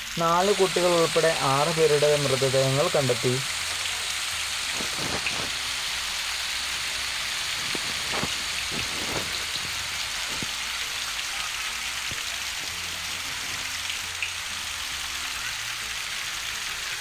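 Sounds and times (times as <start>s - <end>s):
heavy rain: 0.0s - 17.0s
rushing floodwater: 4.6s - 13.9s.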